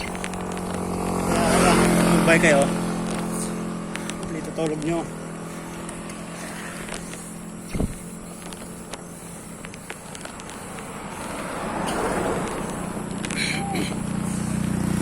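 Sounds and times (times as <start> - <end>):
passing traffic rush: 0.0 - 15.0
vehicle approaching: 0.0 - 15.0.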